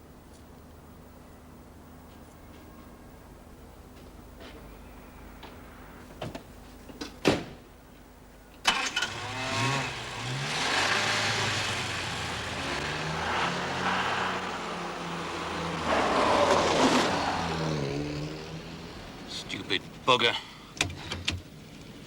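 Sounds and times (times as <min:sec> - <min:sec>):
car engine starting and revving: 0:08.7 - 0:19.5.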